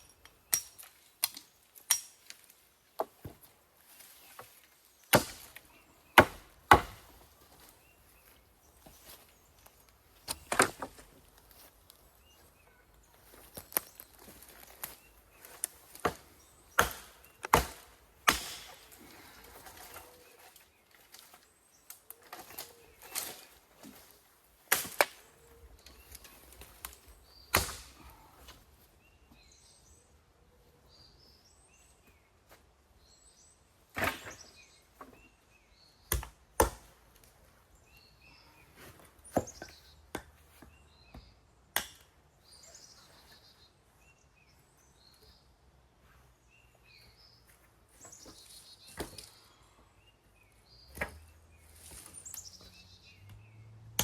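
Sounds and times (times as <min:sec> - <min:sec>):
small birds chirping: 0:00.0 - 0:54.0
axe chopping wood: 0:05.1 - 0:07.1, 0:10.2 - 0:11.1, 0:15.9 - 0:19.0, 0:24.7 - 0:25.2, 0:27.5 - 0:28.1, 0:36.1 - 0:36.9.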